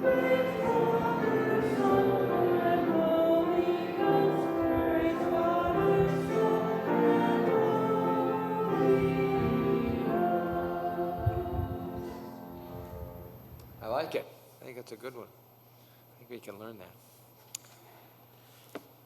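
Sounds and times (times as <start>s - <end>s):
congregation singing a hymn: 0.0s - 13.3s.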